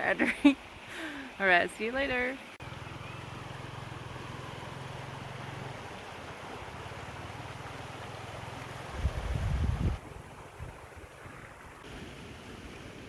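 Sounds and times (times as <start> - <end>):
stream water rushing: 0.0 - 13.0
wind rumble on microphone: 8.7 - 13.0.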